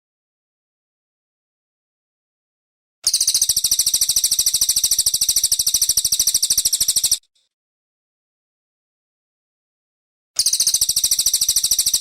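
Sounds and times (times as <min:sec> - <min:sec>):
songbird fast high trill: 0:03.1 - 0:07.2.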